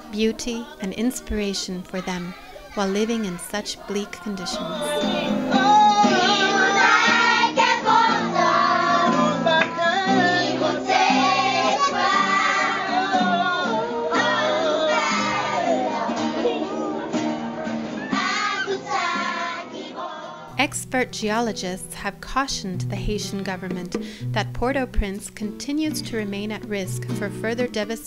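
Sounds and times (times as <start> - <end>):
instrumental music: 0.0 - 15.1, 20.5 - 28.0
children singing: 0.0 - 20.5.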